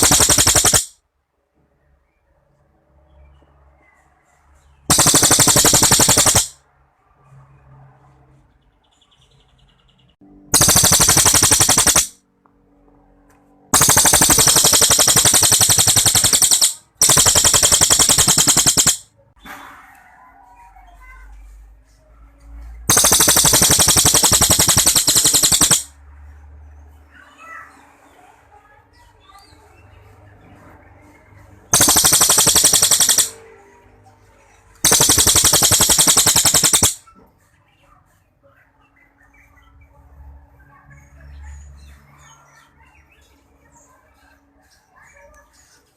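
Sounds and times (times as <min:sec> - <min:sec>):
songbird rapid trills: 0:00.0 - 0:00.9, 0:04.9 - 0:06.6, 0:10.6 - 0:12.1, 0:13.8 - 0:19.0, 0:22.9 - 0:25.9, 0:31.7 - 0:33.4, 0:34.8 - 0:37.0.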